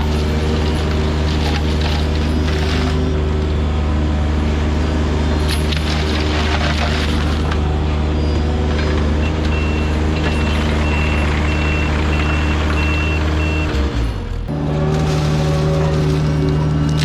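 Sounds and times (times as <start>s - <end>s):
heavy machine engine running: 0.0s - 17.0s
backup alarm beeping: 9.2s - 13.9s.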